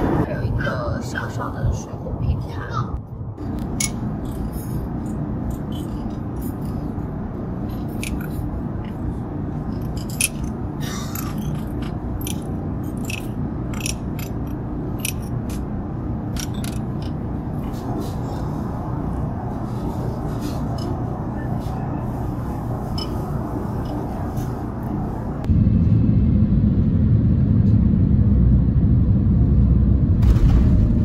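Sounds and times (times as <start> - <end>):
airplane cabin drone: 0.0 - 31.0
utensils clinking on dishes: 9.8 - 15.6.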